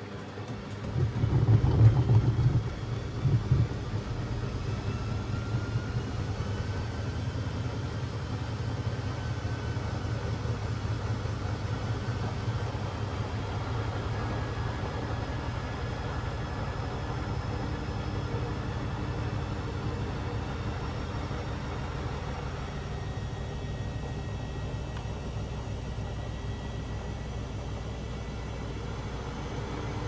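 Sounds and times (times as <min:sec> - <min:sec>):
washing machine drum rumbling: 0:00.1 - 0:06.5
motor whine: 0:00.6 - 0:30.0.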